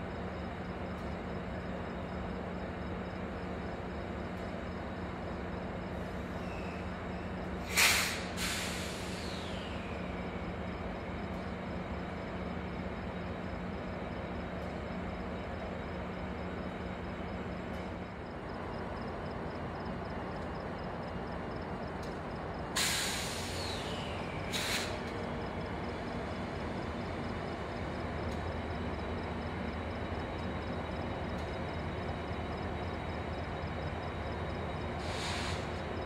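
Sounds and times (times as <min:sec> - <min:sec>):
train rumble: 0:00.0 - 0:36.0
air brake hiss: 0:07.6 - 0:09.9, 0:22.8 - 0:25.0, 0:35.0 - 0:35.8.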